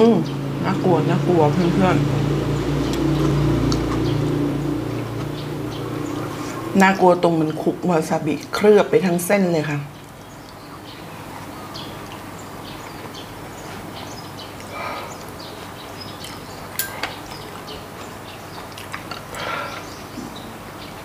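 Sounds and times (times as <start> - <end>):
person chewing: 2.8 - 6.7, 11.2 - 20.0.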